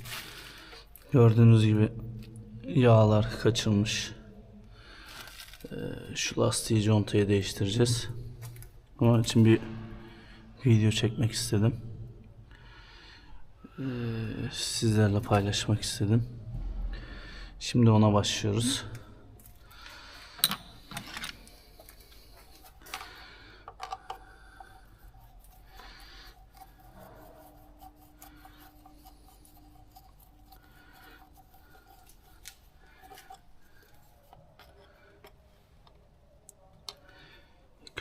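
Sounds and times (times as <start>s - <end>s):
tools clicking and tapping: 22.7s - 24.8s.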